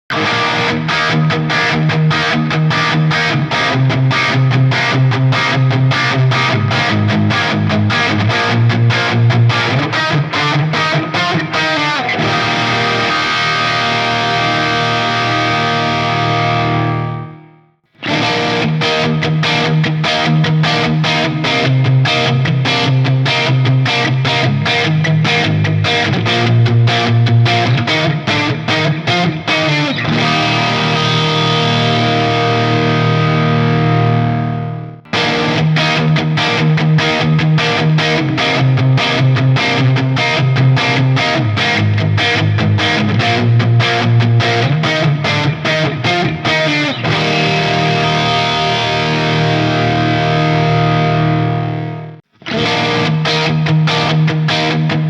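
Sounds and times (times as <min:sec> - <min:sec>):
distorted electric guitar riff: 0:00.1 - 0:55.0.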